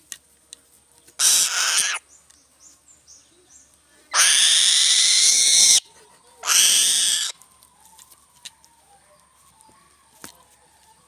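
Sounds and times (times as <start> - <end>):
bird of prey screeching: 1.2 - 2.0, 4.1 - 5.8, 6.4 - 7.4.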